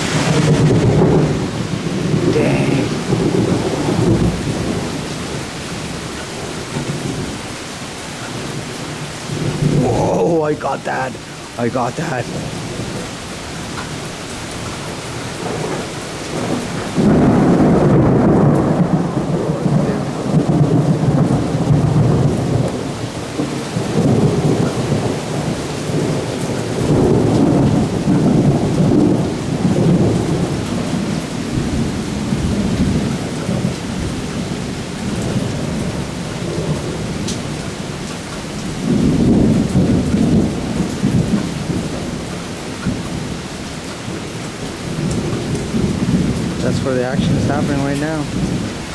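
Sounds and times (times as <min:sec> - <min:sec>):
rolling thunder: 0:00.0 - 0:02.3, 0:02.9 - 0:06.0, 0:15.4 - 0:34.2
heavy rain: 0:00.0 - 0:48.9.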